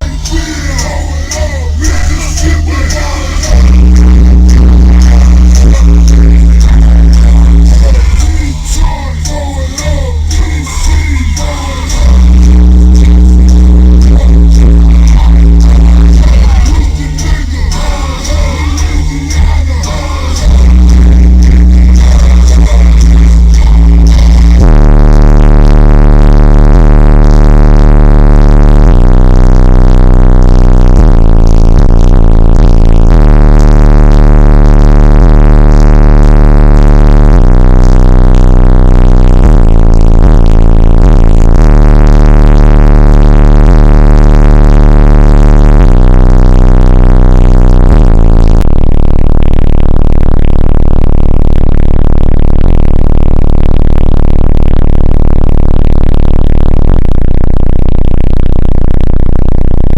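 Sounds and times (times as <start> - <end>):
bass-heavy electronic music: 0.0 - 59.9.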